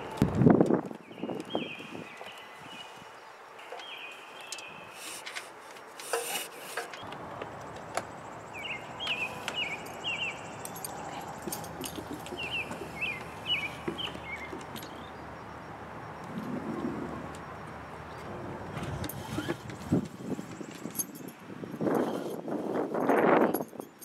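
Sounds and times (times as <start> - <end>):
small birds chirping: 1.0 - 18.3.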